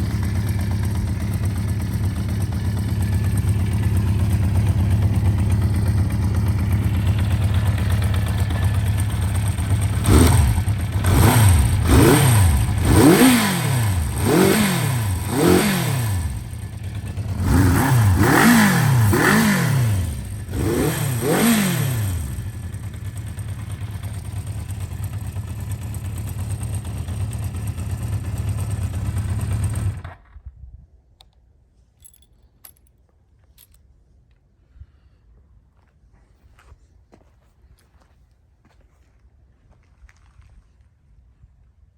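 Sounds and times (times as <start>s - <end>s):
motorcycle engine idling and revving: 0.0s - 30.5s.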